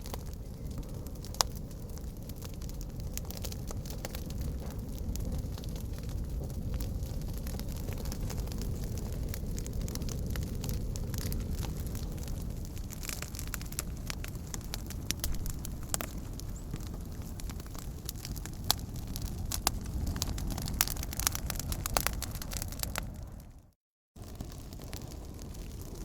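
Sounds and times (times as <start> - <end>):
fire crackling and popping: 0.0 - 26.0.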